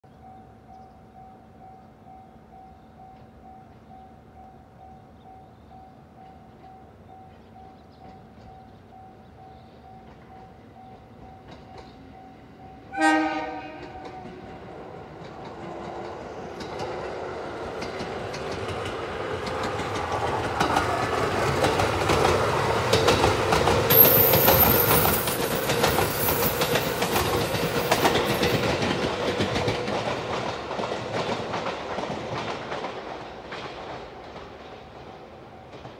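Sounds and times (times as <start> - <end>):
electric train passing: 0.2 - 35.9
wheels clacking over rail joints: 13.5 - 35.9.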